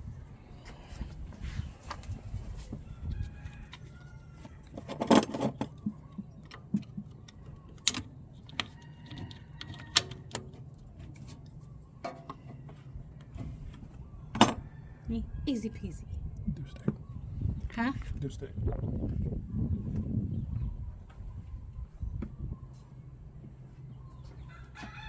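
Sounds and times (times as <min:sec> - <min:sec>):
plastic and metal parts clicking: 0:06.4 - 0:10.5.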